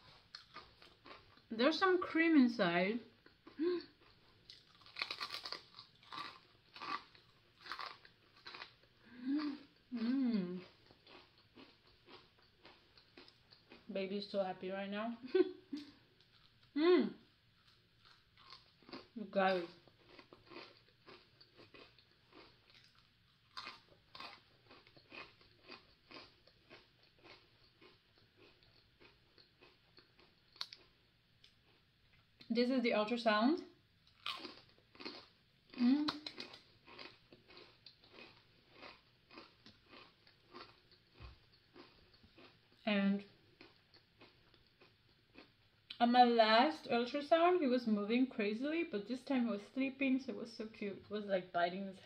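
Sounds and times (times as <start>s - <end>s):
crunching and chewing cookie: 0.0s - 1.5s, 3.1s - 14.0s, 15.7s - 32.5s, 33.8s - 46.0s.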